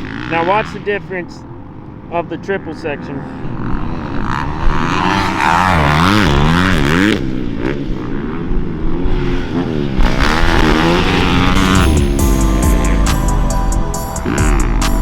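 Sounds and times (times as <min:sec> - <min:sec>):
dirt bike engine revving: 0:03.0 - 0:13.1.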